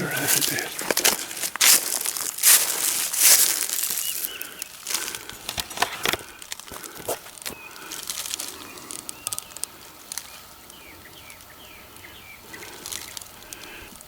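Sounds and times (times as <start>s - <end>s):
handling clicks and rustles: 0.0s - 11.5s
small bird chirping: 3.2s - 4.8s, 7.5s - 13.9s.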